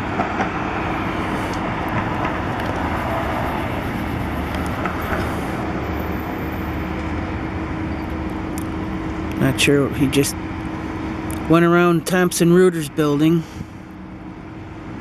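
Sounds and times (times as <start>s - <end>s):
city traffic rumble: 0.0s - 15.0s
low hum: 0.9s - 7.4s.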